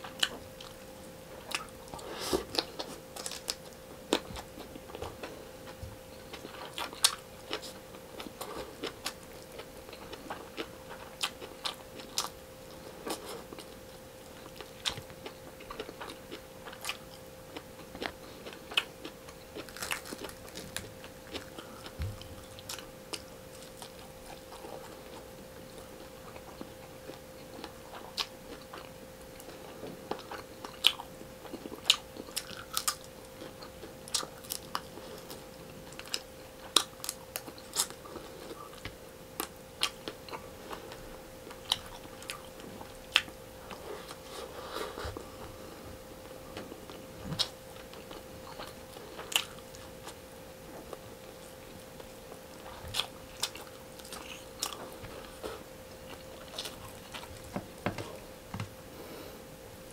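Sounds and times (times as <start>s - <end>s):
faint hum: 0.0s - 59.9s
food crunching: 1.4s - 44.5s, 46.2s - 50.2s, 50.8s - 58.6s.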